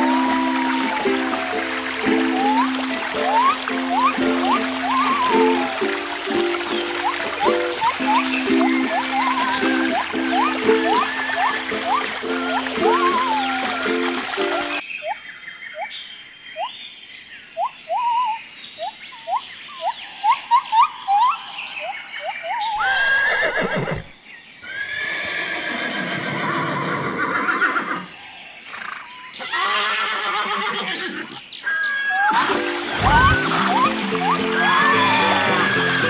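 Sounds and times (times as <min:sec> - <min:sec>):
horse neighing: 0:22.8 - 0:28.1, 0:28.7 - 0:32.4.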